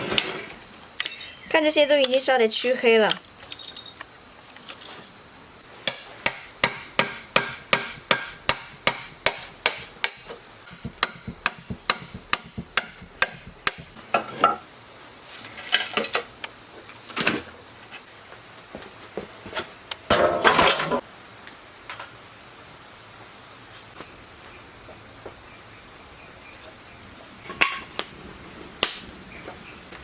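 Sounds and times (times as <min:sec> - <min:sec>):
hammer striking metal: 0:05.8 - 0:14.0.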